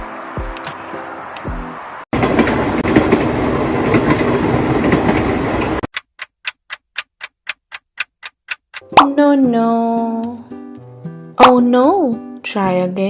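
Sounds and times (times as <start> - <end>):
train clattering on rails: 0.4 - 5.9
sharp evenly spaced ticks: 5.9 - 9.1.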